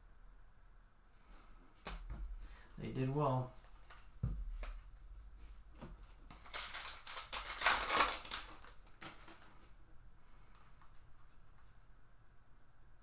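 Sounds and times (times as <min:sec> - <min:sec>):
wrapper tearing and crinkling: 0:06.2 - 0:09.6.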